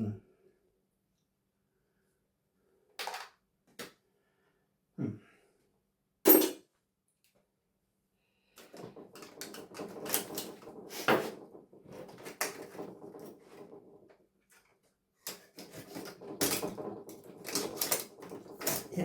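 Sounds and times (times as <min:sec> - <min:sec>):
rattling and scraping of parts: 0:08.5 - 0:19.0.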